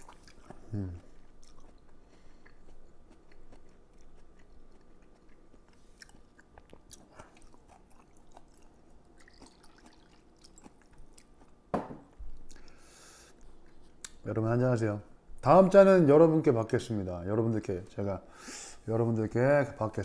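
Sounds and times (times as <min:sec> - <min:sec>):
person chewing food: 0:00.0 - 0:14.2.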